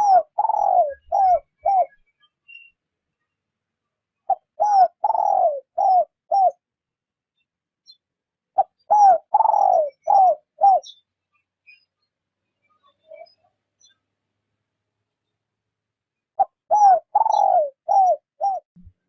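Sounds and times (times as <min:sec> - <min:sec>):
dove cooing: 0:00.0 - 0:02.0, 0:04.3 - 0:06.6, 0:08.6 - 0:11.0, 0:16.4 - 0:18.6.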